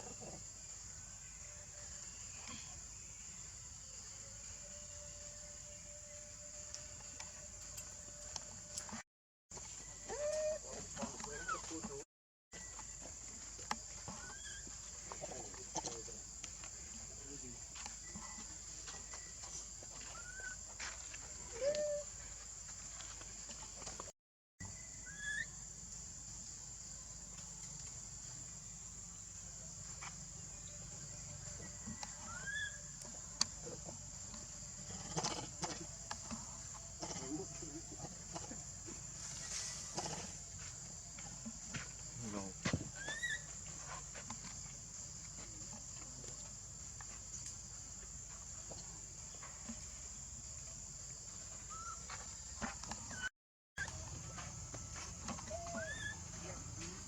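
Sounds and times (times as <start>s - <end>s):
insects droning: 0.0s - 12.0s, 12.6s - 57.0s
faint rustles and ticks: 12.6s - 24.1s, 29.8s - 57.0s.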